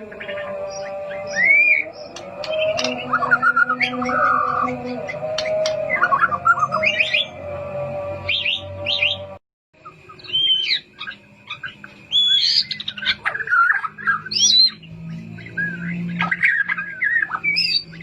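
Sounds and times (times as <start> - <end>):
bird singing whistled phrases: 10.1 - 14.8, 15.4 - 18.0.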